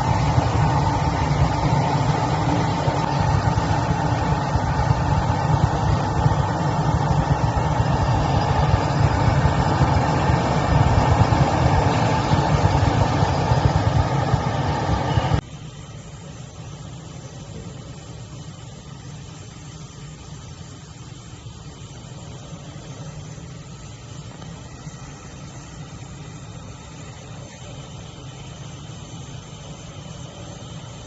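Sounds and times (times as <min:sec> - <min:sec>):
machinery rumbling: 0:00.0 - 0:15.4.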